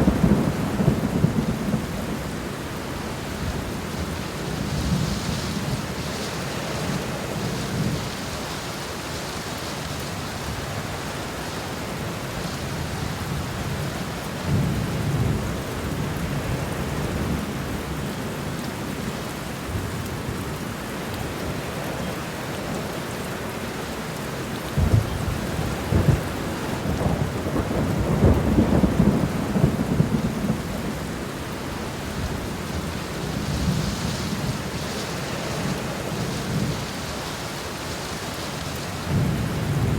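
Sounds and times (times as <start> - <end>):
thunder rumbling: 0.0 - 8.2, 24.7 - 39.9
steady rain falling: 0.0 - 39.9.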